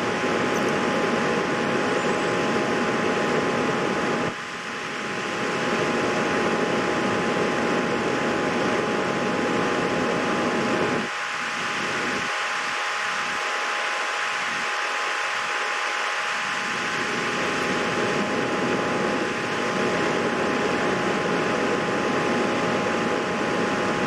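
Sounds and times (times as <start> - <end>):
fan whirring: 0.0 - 24.0.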